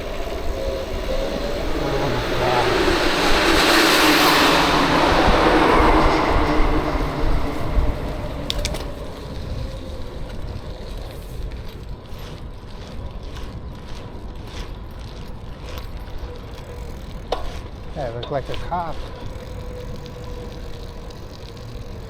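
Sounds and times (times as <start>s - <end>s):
vehicle passing by: 0.0s - 10.8s.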